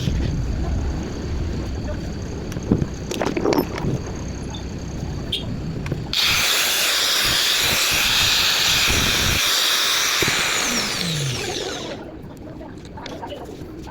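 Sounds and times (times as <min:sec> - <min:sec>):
electric grinder whirring: 0:06.1 - 0:12.1.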